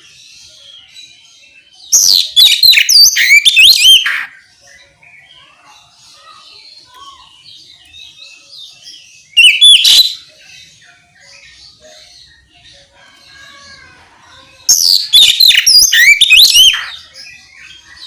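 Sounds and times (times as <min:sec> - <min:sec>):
bird singing whistled notes: 0:00.0 - 0:05.4, 0:07.1 - 0:12.6, 0:14.7 - 0:18.0
high chirping: 0:02.0 - 0:04.9, 0:09.2 - 0:10.3, 0:14.4 - 0:18.0.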